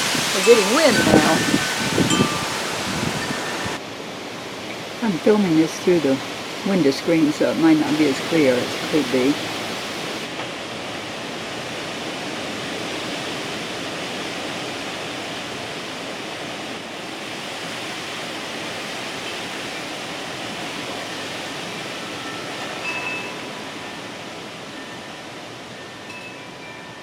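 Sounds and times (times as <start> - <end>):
wind chime ringing: 0.0 - 3.8, 21.1 - 27.0
gusty wind rushing: 0.0 - 18.9.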